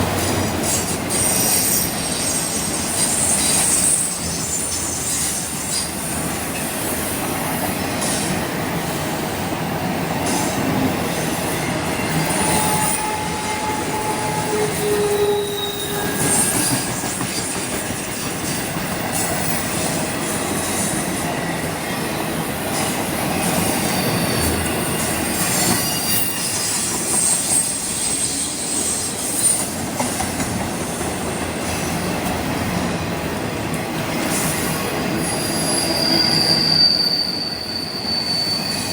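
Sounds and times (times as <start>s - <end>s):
train wheels rumbling on rails: 0.0s - 38.9s
wheel squeals: 11.5s - 20.0s, 23.4s - 30.1s, 35.2s - 38.9s.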